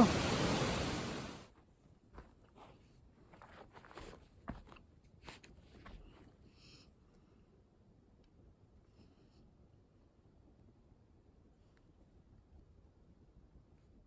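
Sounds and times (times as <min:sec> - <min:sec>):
steady rushing noise: 0:00.0 - 0:01.4.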